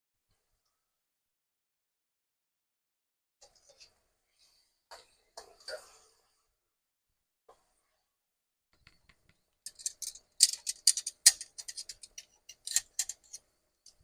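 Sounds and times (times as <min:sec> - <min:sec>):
kitchen utensils clicking and scraping: 0:09.7 - 0:14.0.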